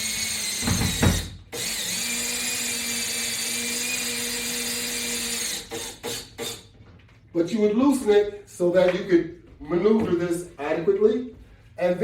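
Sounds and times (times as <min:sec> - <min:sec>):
power drill whining: 0:00.0 - 0:06.7.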